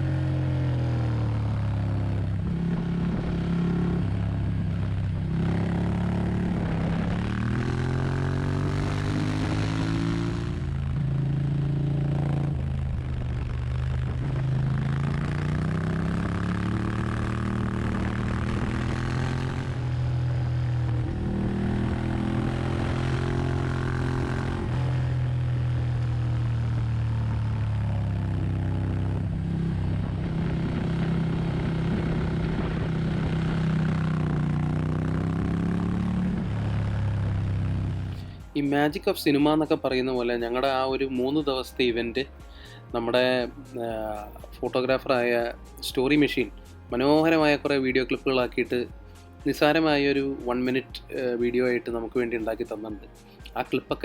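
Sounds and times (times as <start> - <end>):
motorbike engine revving: 0.0 - 41.3.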